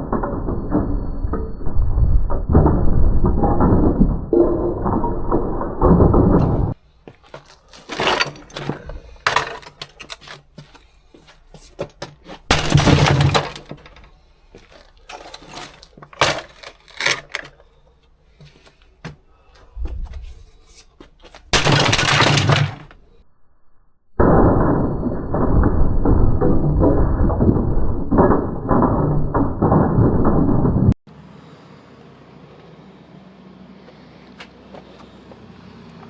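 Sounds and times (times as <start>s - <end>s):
hammer smashing plastic: 6.2s - 17.8s, 21.3s - 23.0s
plastic pieces clattering: 6.4s - 18.8s, 21.2s - 23.0s.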